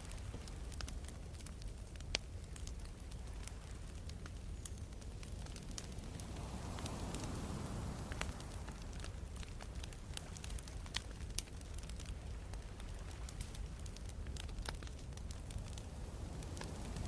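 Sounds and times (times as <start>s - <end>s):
campfire crackling and popping: 0.0s - 17.0s
sea waves rumbling: 5.2s - 14.4s, 15.0s - 17.0s.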